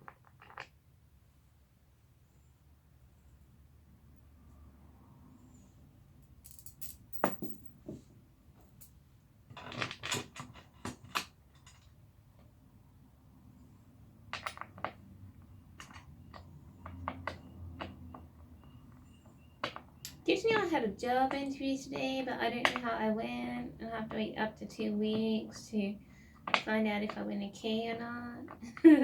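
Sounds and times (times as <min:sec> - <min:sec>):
clicks and knocks of chair parts: 0:07.2 - 0:12.0.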